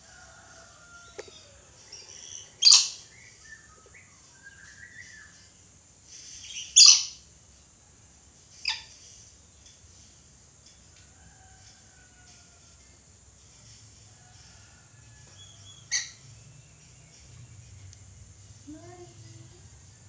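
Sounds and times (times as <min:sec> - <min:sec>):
soft chirps and gliding whistles: 0:01.4 - 0:07.2
parrot screeching: 0:02.6 - 0:03.0.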